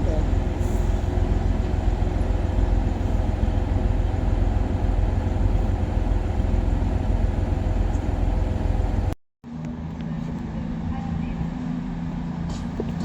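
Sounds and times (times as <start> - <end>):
diesel train engine idling: 0.0 - 9.2.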